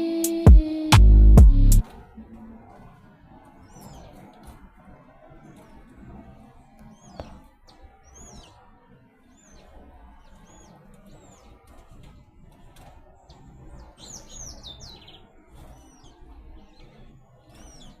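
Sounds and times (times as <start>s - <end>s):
low rumble: 1.0s - 1.8s
small birds chirping: 3.5s - 18.0s.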